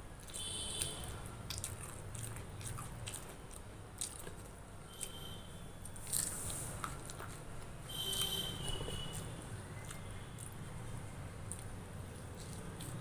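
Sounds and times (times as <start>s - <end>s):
chewing and mouth smacks: 0.2s - 5.2s, 5.8s - 13.0s.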